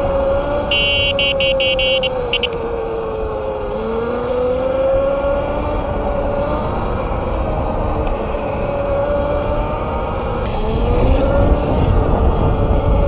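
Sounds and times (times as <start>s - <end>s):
electric motorbike motor whining: 0.0s - 13.0s
high chirping beeps: 0.7s - 2.6s.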